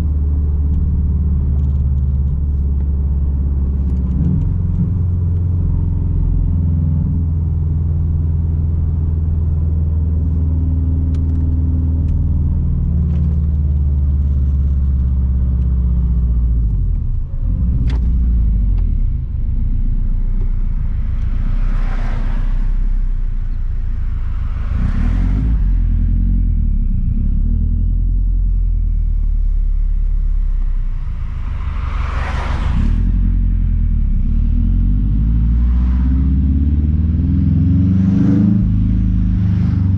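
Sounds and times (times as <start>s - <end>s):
car exhaust rumbling: 0.0s - 39.9s
rushing noise: 30.4s - 33.8s.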